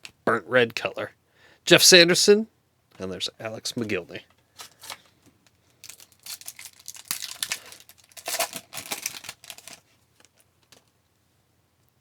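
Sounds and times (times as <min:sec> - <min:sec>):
wrapper crinkling and tearing: 0:04.6 - 0:05.1, 0:05.7 - 0:10.9.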